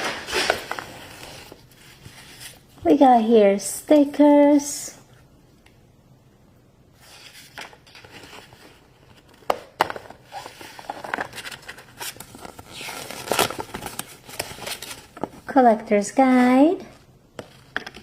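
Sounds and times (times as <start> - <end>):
plastic packaging crinkling: 7.4 - 15.5.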